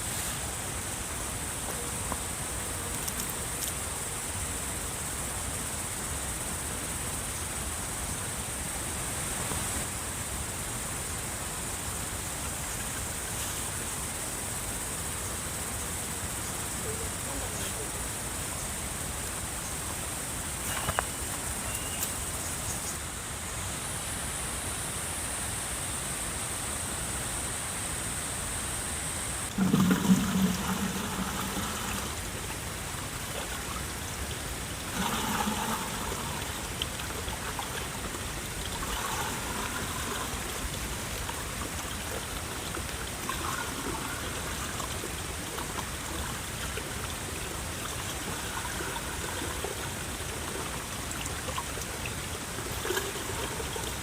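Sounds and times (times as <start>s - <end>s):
water trickling: 2.1s - 3.8s, 29.5s - 54.0s.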